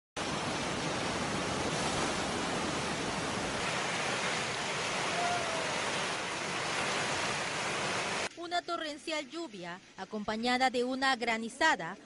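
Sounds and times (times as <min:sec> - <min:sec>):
heavy rain and hail: 0:00.2 - 0:08.3.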